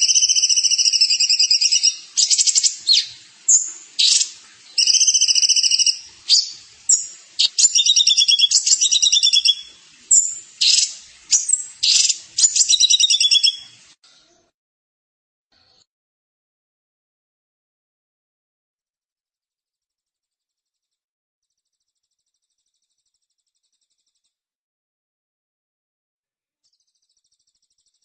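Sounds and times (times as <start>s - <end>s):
songbird trilling: 0.0s - 13.8s.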